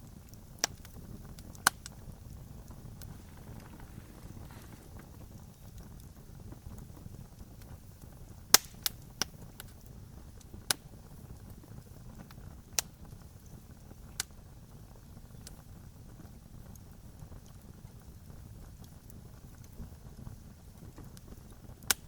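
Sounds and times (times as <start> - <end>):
low rumble of campfire: 0.0 - 22.0
wood snapping pops: 8.5 - 9.7.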